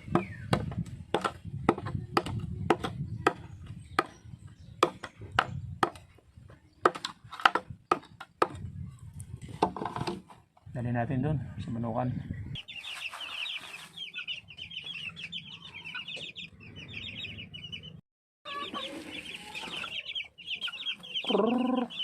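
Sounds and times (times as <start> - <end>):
blade chopping bamboo: 6.8 - 8.6.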